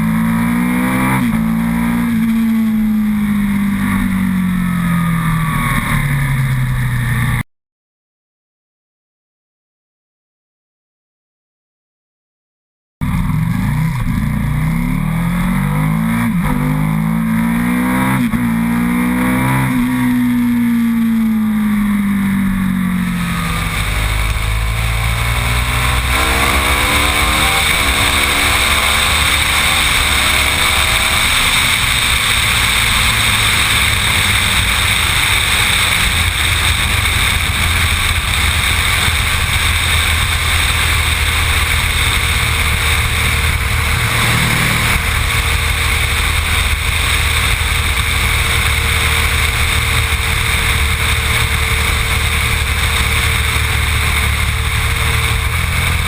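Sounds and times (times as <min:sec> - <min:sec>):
motorcycle engine accelerating: 0:00.0 - 0:07.4, 0:13.0 - 0:56.0.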